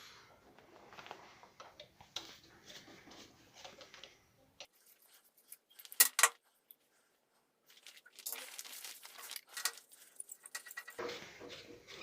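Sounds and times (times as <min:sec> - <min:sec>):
clicks and scrapes of hard parts: 0:09.5 - 0:12.0.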